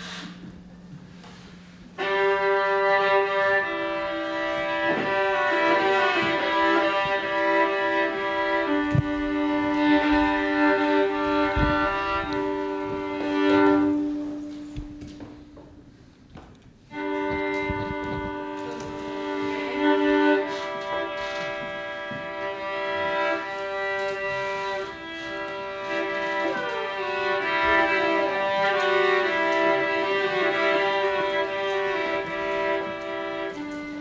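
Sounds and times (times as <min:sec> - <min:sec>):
sliding pitches: 0:02.0 - 0:15.6.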